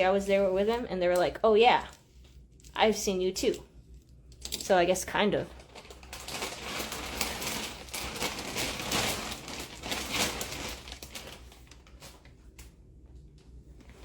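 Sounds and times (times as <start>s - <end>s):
plastic bags crinkling: 5.4s - 12.7s.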